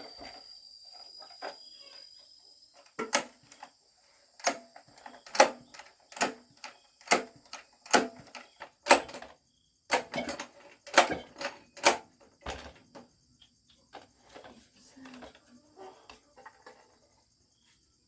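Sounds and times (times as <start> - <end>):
high insect buzz: 0.0 - 4.4.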